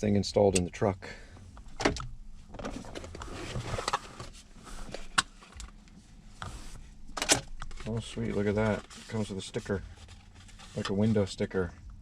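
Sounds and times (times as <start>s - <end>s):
packaging rustling and scraping: 2.6s - 5.7s, 7.5s - 11.4s.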